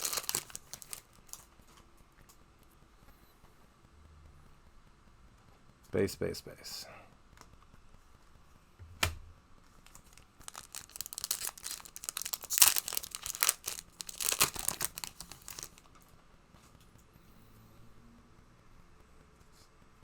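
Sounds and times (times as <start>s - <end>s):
wrapper tearing and crinkling: 0.0s - 1.5s, 9.8s - 15.9s.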